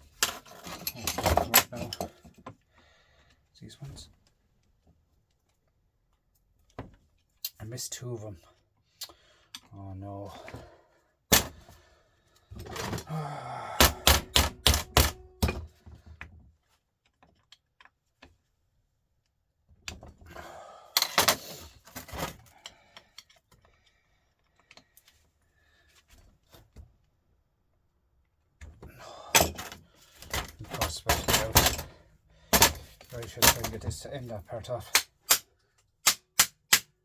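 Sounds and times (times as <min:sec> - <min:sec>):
metallic knocks of hand tools: 0:13.8 - 0:15.7.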